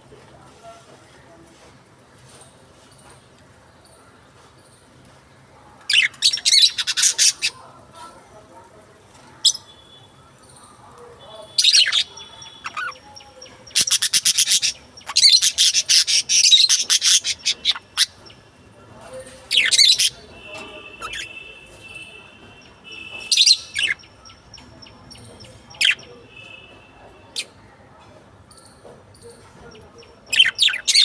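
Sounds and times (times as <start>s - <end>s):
lovebirds chirping and chattering: 5.9s - 8.1s, 9.1s - 27.6s, 28.5s - 31.0s.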